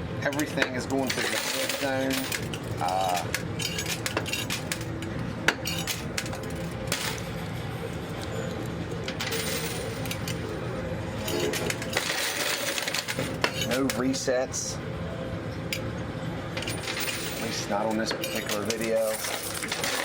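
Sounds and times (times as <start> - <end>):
steady background hum: 0.0 - 20.0
coins dropping and clinking: 0.3 - 7.4, 9.0 - 10.5, 11.2 - 14.2, 16.6 - 20.0.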